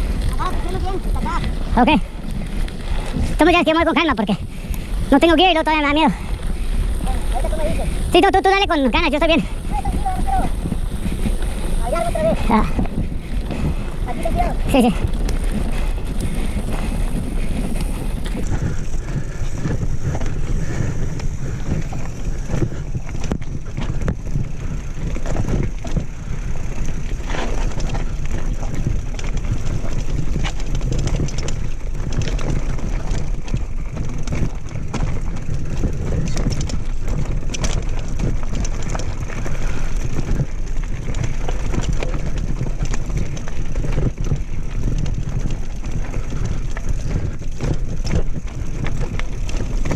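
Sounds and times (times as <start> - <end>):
low rumble: 0.0 - 20.5
bike rattling: 0.0 - 49.9
tyres crunching on dirt trail: 0.0 - 49.9.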